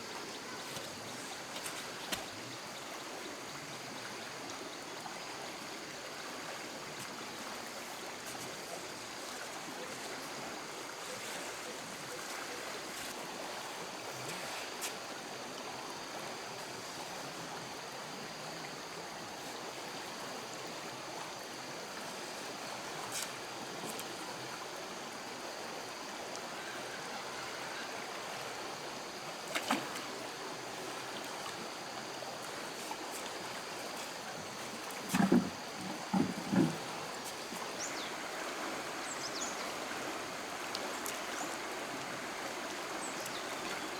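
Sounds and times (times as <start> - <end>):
stream water flowing: 0.0 - 43.9.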